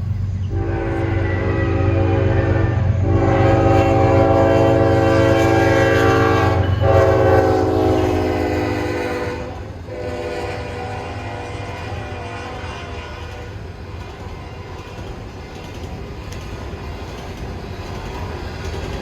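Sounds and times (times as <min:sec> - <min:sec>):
passing train drone: 0:00.0 - 0:19.0
locomotive horn blasts: 0:00.5 - 0:13.7.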